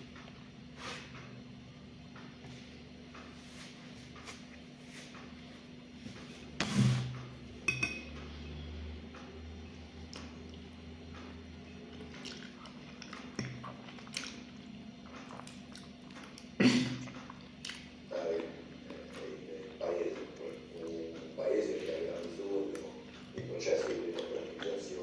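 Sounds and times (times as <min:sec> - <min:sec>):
soft chewing: 0:09.2 - 0:25.0.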